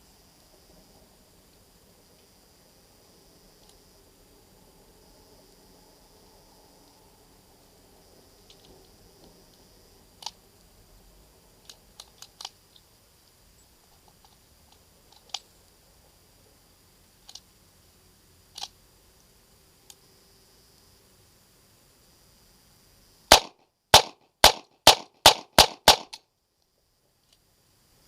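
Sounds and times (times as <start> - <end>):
light sharp clicks: 10.2 - 10.4, 11.6 - 15.8, 17.2 - 17.5, 18.5 - 18.8.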